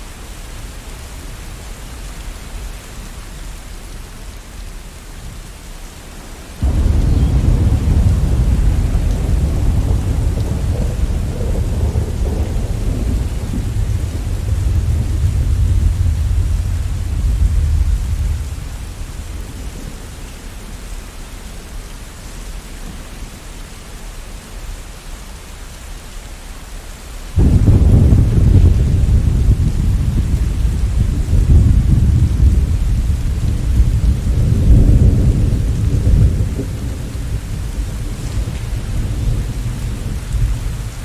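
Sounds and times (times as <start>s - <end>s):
steady rain: 0.0s - 41.0s
thunder rumbling: 6.6s - 20.8s, 27.4s - 41.0s.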